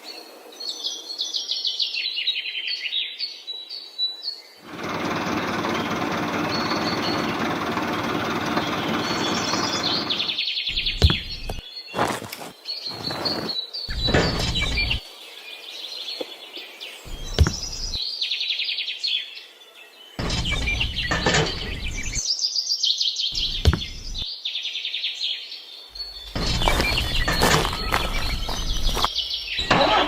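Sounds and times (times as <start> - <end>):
small birds chirping: 0.0 - 30.0
bursts of rough noise: 4.6 - 11.6, 17.1 - 18.0, 20.2 - 22.2, 26.1 - 30.0.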